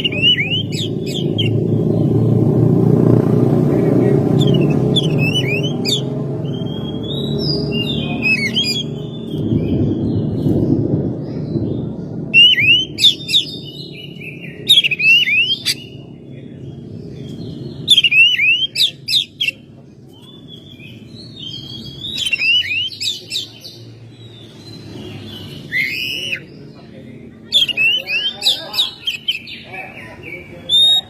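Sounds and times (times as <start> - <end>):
bird singing whistled notes: 0.0 - 2.1, 4.4 - 10.8, 11.4 - 16.1, 17.2 - 19.6, 20.2 - 26.6, 27.5 - 29.7, 30.3 - 31.0
low background rumble: 0.0 - 18.1.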